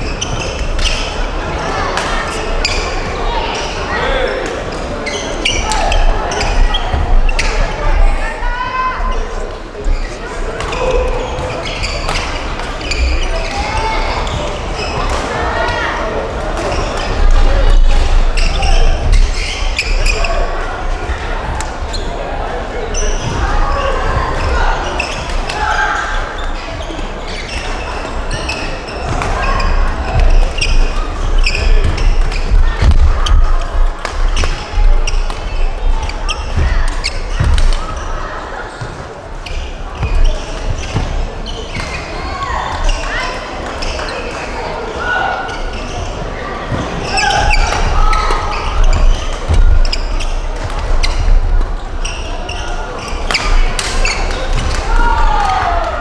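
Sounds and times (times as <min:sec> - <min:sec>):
court shoes squeaking: 0:00.0 - 0:56.0
footwork thuds: 0:29.2 - 0:38.2
racket hitting shuttlecock: 0:34.0 - 0:35.7.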